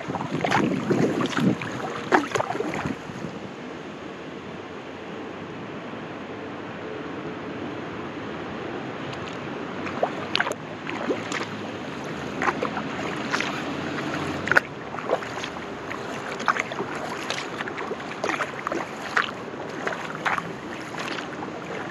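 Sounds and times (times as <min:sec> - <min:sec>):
paddle splashing in water: 0:00.0 - 0:03.2, 0:09.2 - 0:21.9
water dripping: 0:09.9 - 0:11.6, 0:12.2 - 0:21.9.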